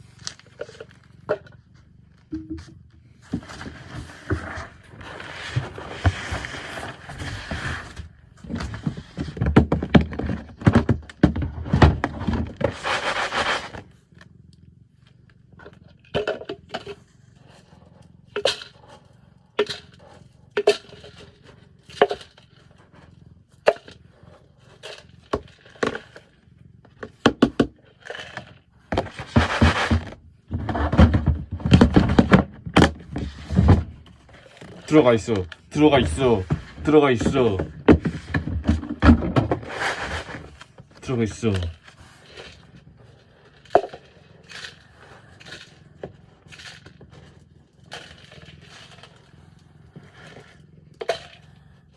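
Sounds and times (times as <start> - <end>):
gritty scraping of cat litter: 0.0 - 2.0, 3.0 - 51.9
knocks and clicks: 2.3 - 2.8.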